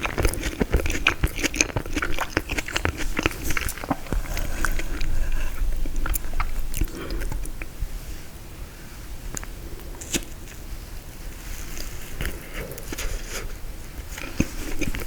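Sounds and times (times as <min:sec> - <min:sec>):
crunchy biting and chewing: 0:00.0 - 0:07.7, 0:11.5 - 0:15.0.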